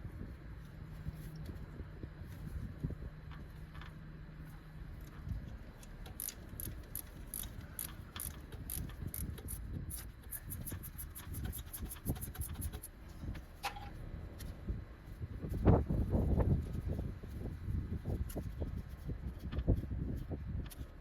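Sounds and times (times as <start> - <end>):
ratchet wrench clicking: 6.0 - 12.9.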